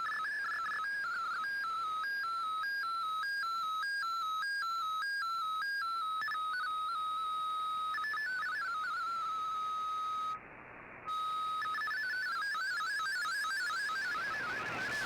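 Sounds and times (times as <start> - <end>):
digital data tones on radio: 0.0 - 10.4, 11.1 - 15.0.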